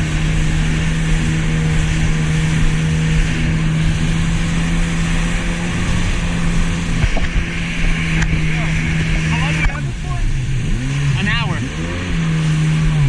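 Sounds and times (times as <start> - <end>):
jet ski engine humming: 0.0 - 13.0
rushing wind and water spray: 0.0 - 13.0.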